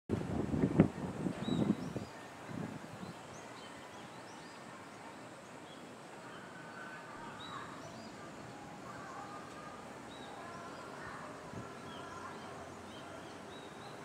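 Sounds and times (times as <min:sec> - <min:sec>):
wind gust on microphone: 0:00.1 - 0:03.7, 0:09.7 - 0:13.1
faint outdoor background noise: 0:00.1 - 0:14.0
birds chirping: 0:01.4 - 0:14.0.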